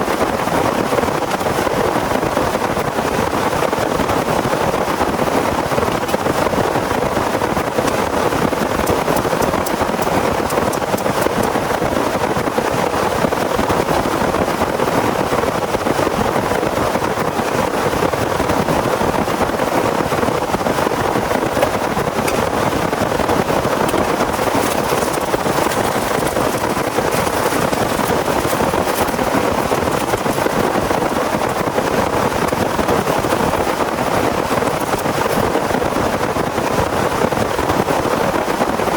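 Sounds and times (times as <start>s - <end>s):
heavy rain falling: 17.5s - 37.7s.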